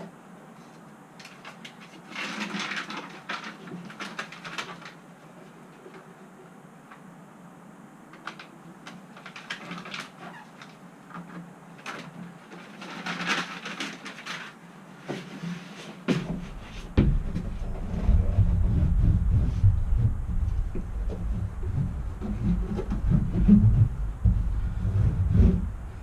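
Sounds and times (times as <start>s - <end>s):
scraping and rustling: 0.0s - 6.5s, 8.2s - 26.0s
clicks and knocks in metal van: 16.1s - 17.7s.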